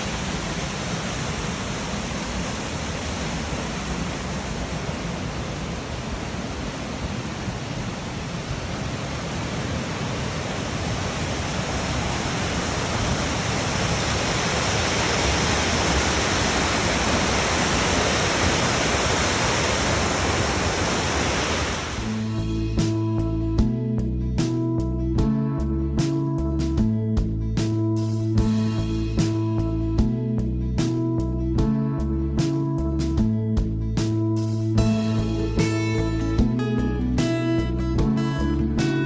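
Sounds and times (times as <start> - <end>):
waterfall rushing: 0.0 - 22.4.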